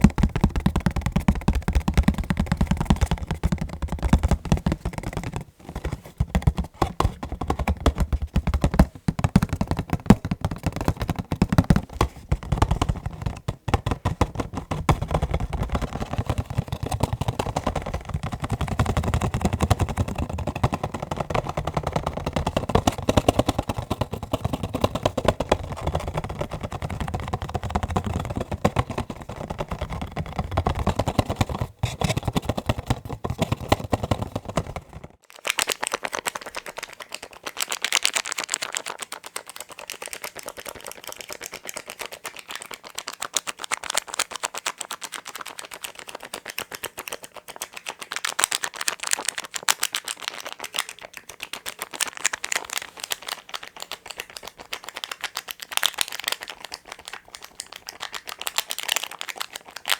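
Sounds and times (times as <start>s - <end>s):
fingertips tapping on packaging: 0.0s - 35.2s.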